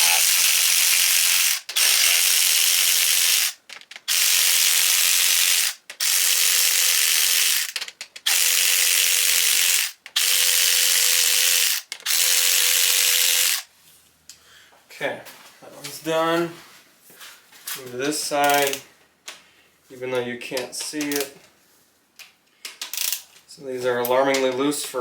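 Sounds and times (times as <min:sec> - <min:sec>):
powered ratchet running: 0:00.0 - 0:13.6.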